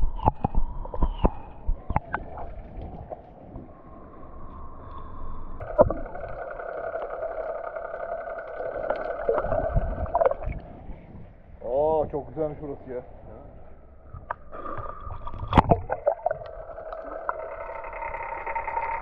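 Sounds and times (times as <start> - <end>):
boat engine running: 5.6 - 11.6, 15.7 - 19.0.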